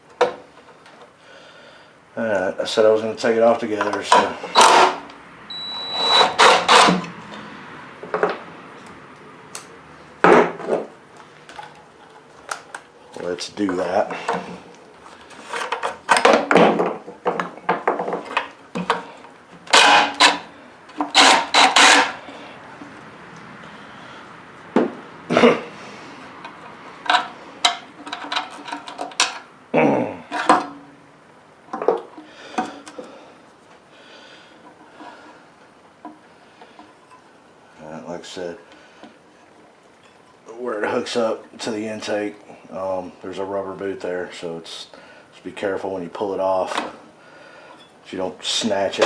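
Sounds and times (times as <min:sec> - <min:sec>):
small engine parts clicking and rattling: 0:17.4 - 0:22.4, 0:26.4 - 0:29.5
tools knocking and clattering: 0:26.4 - 0:29.4.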